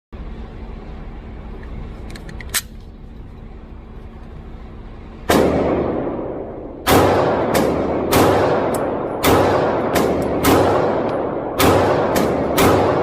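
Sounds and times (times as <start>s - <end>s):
pistol shot with echo: 5.3s - 13.0s.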